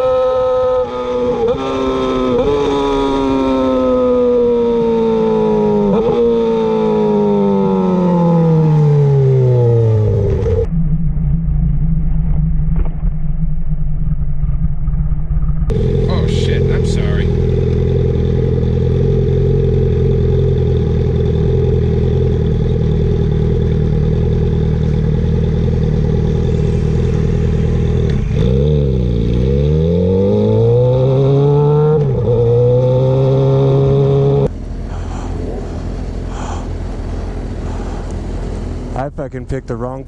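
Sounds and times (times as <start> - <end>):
sport motorcycle engine: 0.0 - 12.2, 14.6 - 40.0
road and wind noise: 0.0 - 40.0
gear shifts: 31.9 - 39.0.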